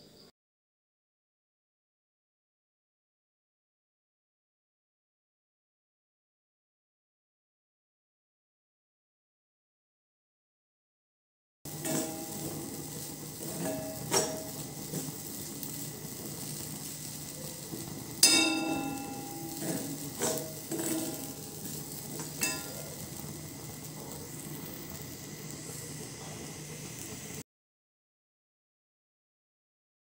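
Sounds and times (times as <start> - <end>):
paste sizzling in pan: 11.7 - 27.4
metal spoon scraping pan: 18.2 - 23.0
spoon clinking against pan: 18.2 - 23.0.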